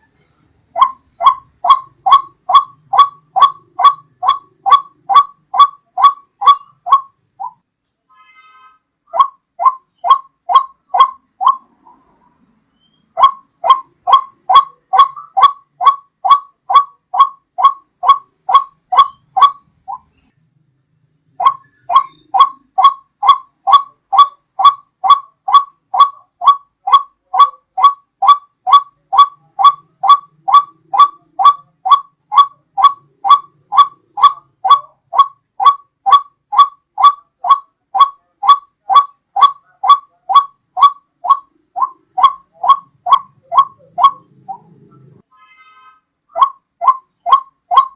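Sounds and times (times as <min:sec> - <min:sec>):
waterhen calling: 0:00.8 - 0:07.6, 0:09.1 - 0:12.2, 0:12.8 - 0:20.3, 0:21.3 - 0:45.2, 0:46.3 - 0:47.9.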